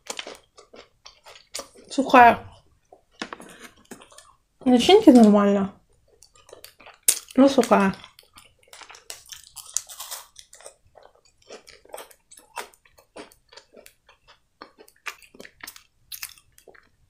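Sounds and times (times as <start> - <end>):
person chewing crunchy candy: 0.0 - 4.4, 5.1 - 17.0.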